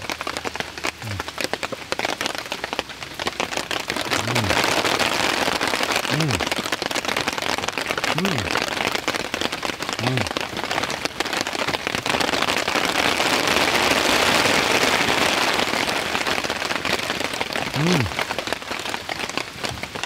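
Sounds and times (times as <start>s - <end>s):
rain pattering: 0.0s - 20.0s
person murmuring: 1.0s - 1.4s, 4.1s - 4.7s, 6.1s - 6.5s, 8.0s - 8.6s, 10.0s - 10.4s, 17.7s - 18.2s.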